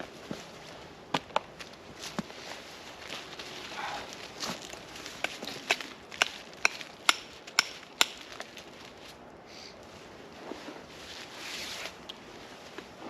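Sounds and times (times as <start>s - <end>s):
dry wood cracking: 4.1s - 8.8s
short rustle: 9.8s - 13.0s.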